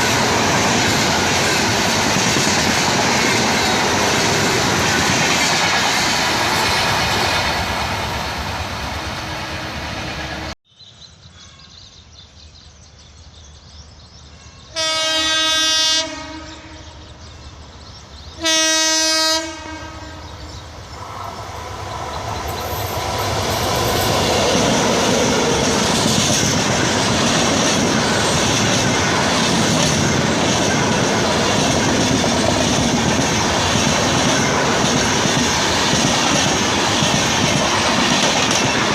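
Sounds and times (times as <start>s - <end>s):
train wheels clattering: 0.0s - 8.2s, 22.1s - 38.9s
locomotive horn blasts: 14.8s - 17.0s, 18.4s - 20.3s.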